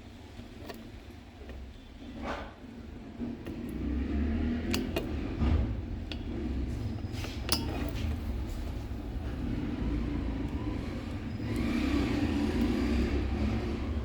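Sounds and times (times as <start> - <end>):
road traffic rumble: 3.1 - 14.0.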